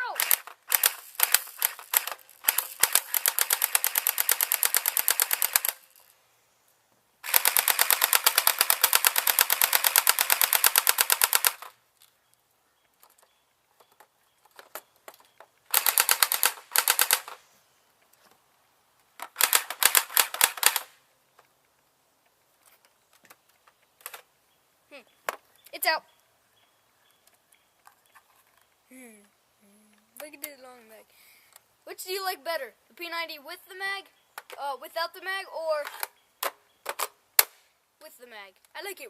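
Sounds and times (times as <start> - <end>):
airsoft gun firing bursts: 0.0 - 5.8, 7.2 - 11.7, 15.7 - 17.4, 19.4 - 21.0.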